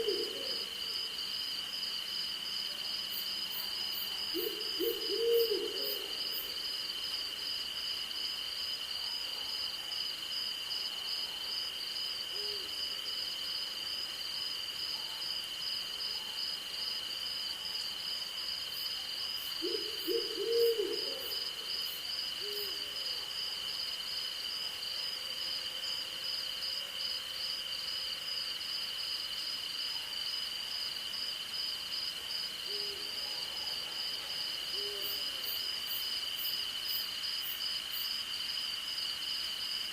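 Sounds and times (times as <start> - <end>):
owl hooting: 4.3 - 6.2, 19.6 - 21.4.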